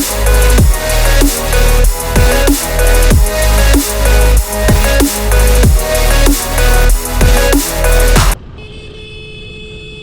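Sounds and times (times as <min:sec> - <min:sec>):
electronic background music: 0:00.0 - 0:08.4
vehicle horn long note: 0:08.6 - 0:10.0.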